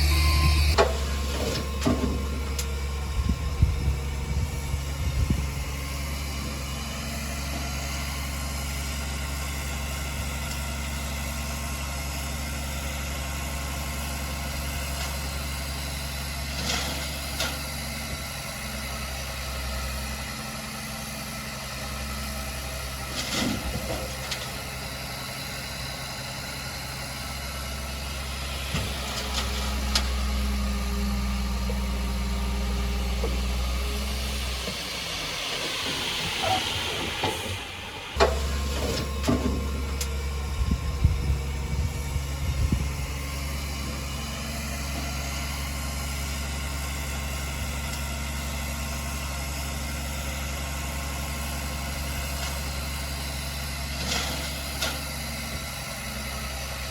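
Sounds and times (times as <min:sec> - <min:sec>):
heavy diesel engine idling: 0:00.0 - 0:56.9
hiss: 0:33.7 - 0:38.5.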